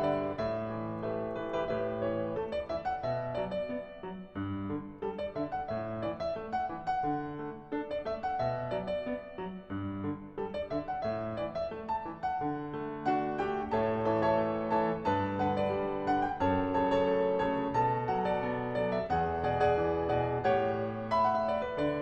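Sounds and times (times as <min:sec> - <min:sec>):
piano melody with chords: 0:00.0 - 0:22.0.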